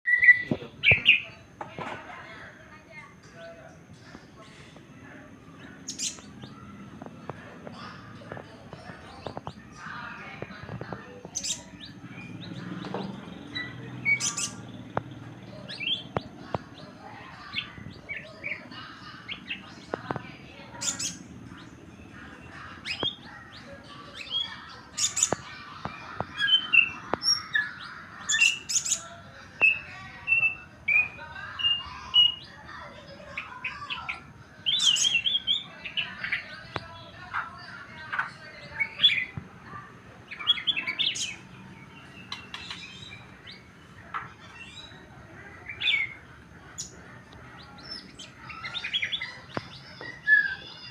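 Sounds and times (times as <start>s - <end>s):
bird singing chirps and whistles: 0.1s - 1.3s.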